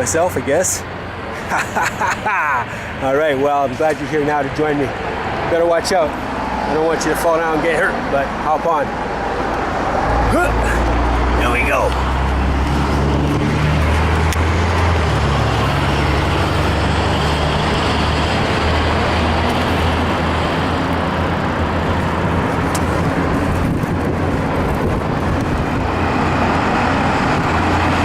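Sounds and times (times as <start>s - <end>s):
bicycle road noise: 0.0s - 28.0s
wind on microphone: 12.0s - 28.0s.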